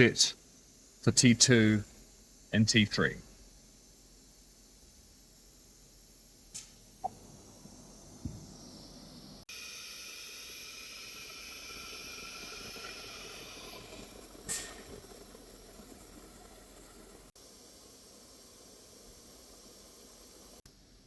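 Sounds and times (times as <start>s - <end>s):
router hiss: 6.6s - 15.8s.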